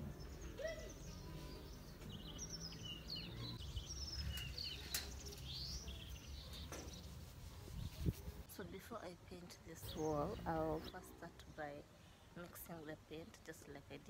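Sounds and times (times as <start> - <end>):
birds chirping and twittering: 0.0 - 8.4, 9.7 - 11.8.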